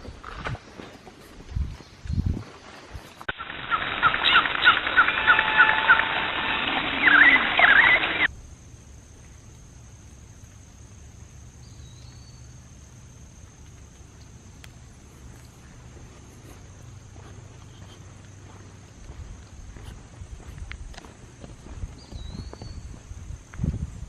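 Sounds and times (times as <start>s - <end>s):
faint woodland ambience: 0.0s - 24.0s
birds chirping: 3.1s - 8.3s, 21.2s - 23.1s.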